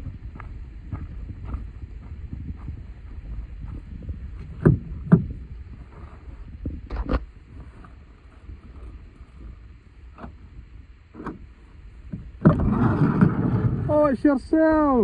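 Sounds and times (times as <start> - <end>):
sharp knocks and clunks: 4.4 - 5.4.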